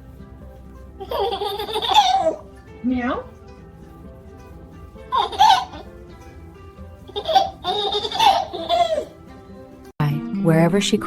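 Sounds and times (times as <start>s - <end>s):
background music: 0.0s - 11.0s
baby laughing: 1.0s - 2.5s, 5.1s - 5.9s, 7.1s - 9.2s.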